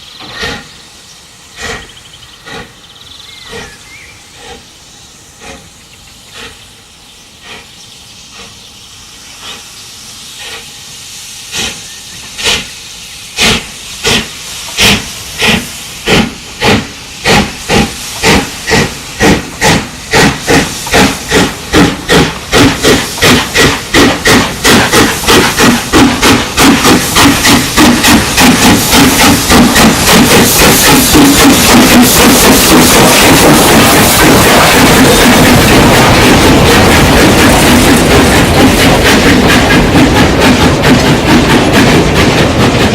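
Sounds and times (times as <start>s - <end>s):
steam locomotive exhaust beats: 0.0s - 42.9s.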